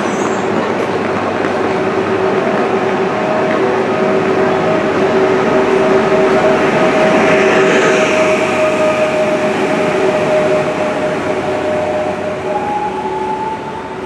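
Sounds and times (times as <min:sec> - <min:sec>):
train running with humming tones: 0:00.0 - 0:14.0.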